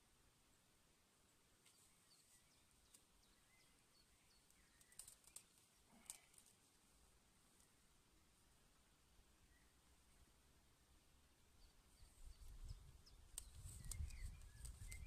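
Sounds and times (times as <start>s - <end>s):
distant bird chirps: 1.6s - 6.4s, 11.5s - 15.0s
soft clicks: 4.4s - 6.6s, 13.3s - 15.0s.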